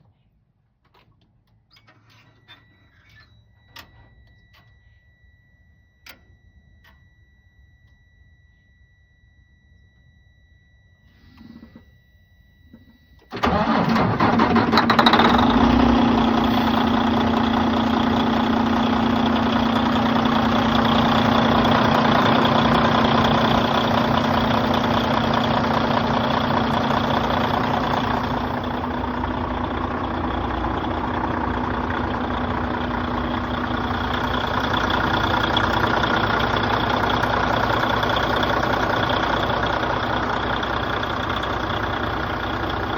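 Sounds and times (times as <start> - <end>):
diesel truck engine starting and idling: 13.3 - 42.9.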